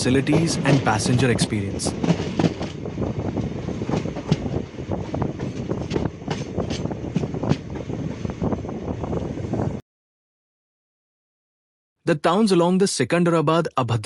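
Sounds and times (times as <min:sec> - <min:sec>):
wheels clattering on rails: 0:00.0 - 0:08.3
train rumbling: 0:00.0 - 0:09.8.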